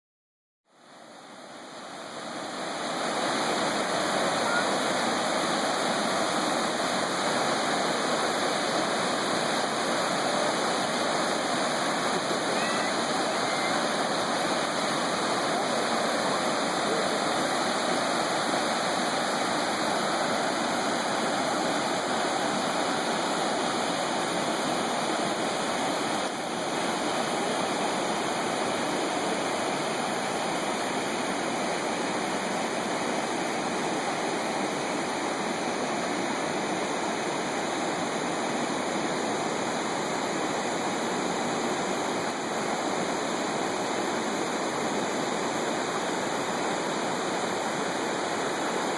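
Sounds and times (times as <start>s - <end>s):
water rushing down a cascade: 0.8s - 48.9s.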